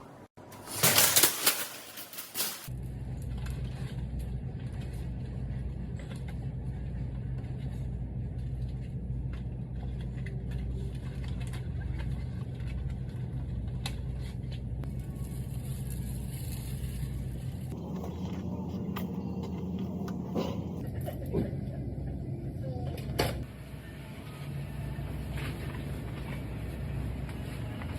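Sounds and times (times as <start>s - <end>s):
car engine hum: 14.8s - 20.9s.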